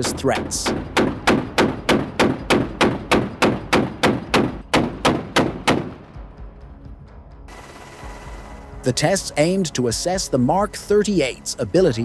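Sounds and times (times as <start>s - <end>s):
naval gun firing rounds: 0.0s - 6.0s.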